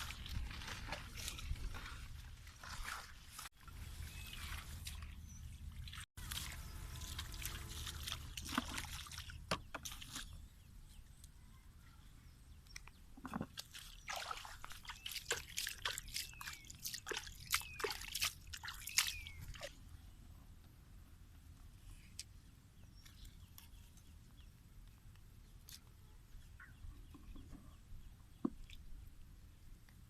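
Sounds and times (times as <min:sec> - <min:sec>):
water sloshing and splashing: 0:00.0 - 0:10.4, 0:13.2 - 0:19.8
water dripping: 0:13.6 - 0:19.7.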